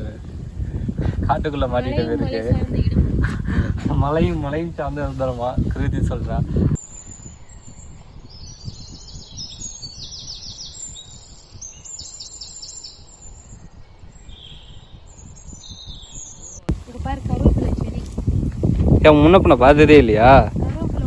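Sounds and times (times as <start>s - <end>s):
small birds chirping: 6.4s - 21.0s.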